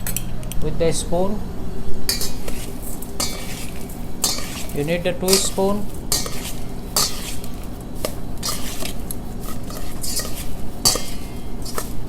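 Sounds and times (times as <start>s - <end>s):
spoons clinking and scraping bowl: 2.1s - 12.0s.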